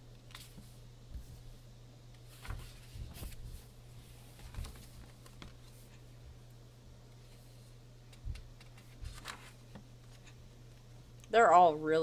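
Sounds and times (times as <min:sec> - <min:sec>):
steady low hum: 0:00.0 - 0:12.0
paper pages rustling: 0:02.2 - 0:06.0, 0:08.1 - 0:10.4.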